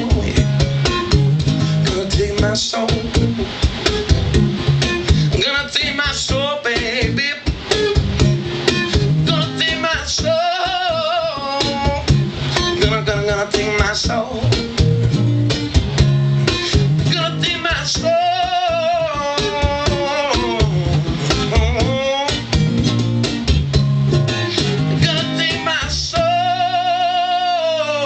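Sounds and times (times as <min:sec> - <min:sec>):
singer wavering wordless vocals: 0:00.0 - 0:00.6, 0:05.2 - 0:07.5, 0:09.2 - 0:12.1, 0:12.8 - 0:14.6, 0:17.0 - 0:22.5, 0:25.0 - 0:28.0
live soul-rock music: 0:00.0 - 0:28.0
steady bass line: 0:00.0 - 0:28.0.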